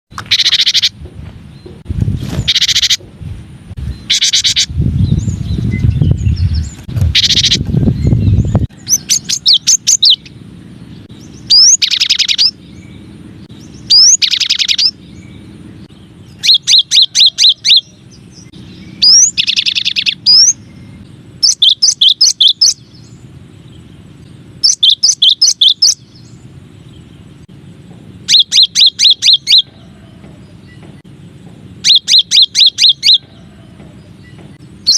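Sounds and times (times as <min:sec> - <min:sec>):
bird song with rapid whistles: 0:00.2 - 0:03.0, 0:03.8 - 0:27.3, 0:28.2 - 0:31.0, 0:31.8 - 0:33.4, 0:34.0 - 0:34.9
low rumble: 0:04.7 - 0:14.0.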